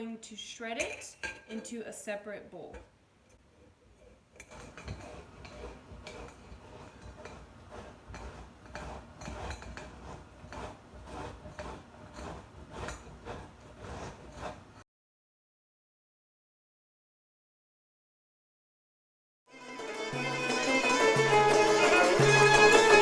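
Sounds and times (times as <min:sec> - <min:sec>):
grating on a hand grater: 0:04.0 - 0:14.8.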